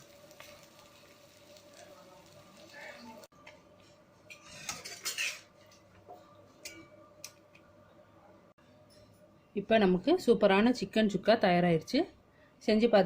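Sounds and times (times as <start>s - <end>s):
metal spoon scraping cookware: 4.3s - 5.5s.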